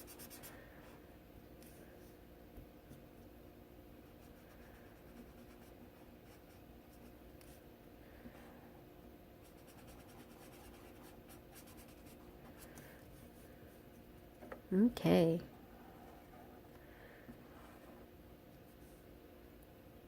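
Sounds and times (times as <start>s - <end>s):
low steady hum: 0.0s - 20.0s
colouring tool scratching paper: 9.5s - 12.7s.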